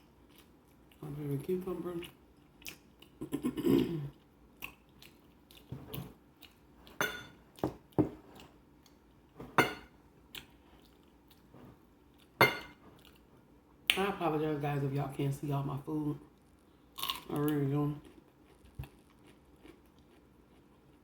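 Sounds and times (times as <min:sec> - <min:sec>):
person chewing food: 0:00.0 - 0:01.0, 0:02.0 - 0:09.4, 0:10.2 - 0:13.5, 0:16.3 - 0:21.0.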